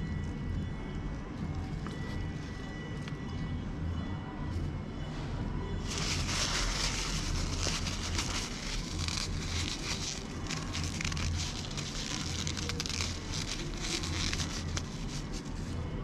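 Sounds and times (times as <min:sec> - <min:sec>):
chewing crispy fried chicken: 0:05.9 - 0:15.0.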